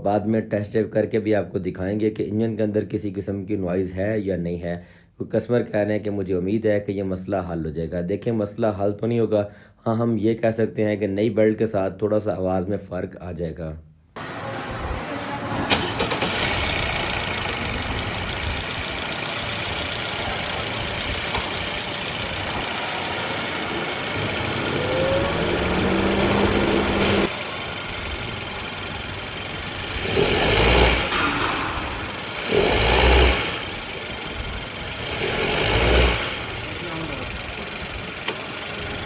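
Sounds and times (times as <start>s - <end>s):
car engine running and revving: 14.2s - 39.0s.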